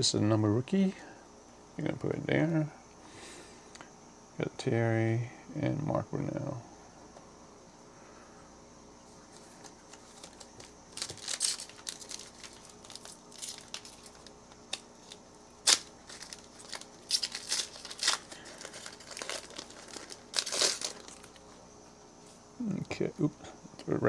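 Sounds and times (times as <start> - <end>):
foil wrapper crinkling and tearing: 9.3 - 21.6
sharp wrapper snap: 10.2 - 21.4.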